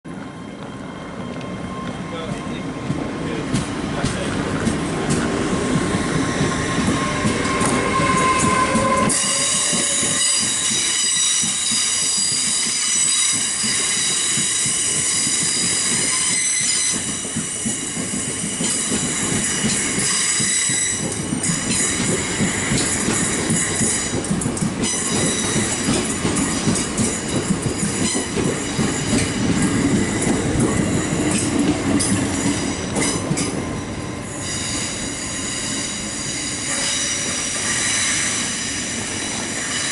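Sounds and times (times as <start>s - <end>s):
train wheels rumbling on rail: 0.1s - 39.9s.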